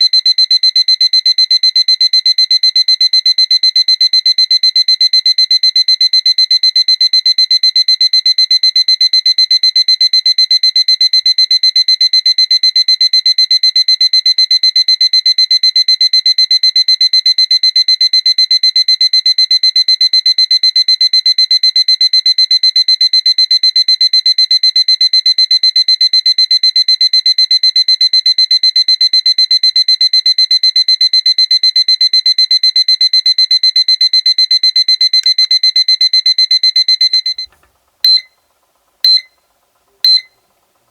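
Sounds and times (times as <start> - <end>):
alarm clock beeping: 38.1 - 38.3, 39.1 - 39.3, 40.0 - 40.4.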